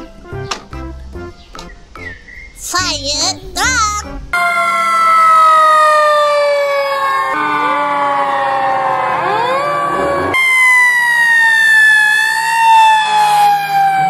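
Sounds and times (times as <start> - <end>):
fire engine sirens wailing: 4.3 - 14.0
warbling siren: 4.3 - 14.0.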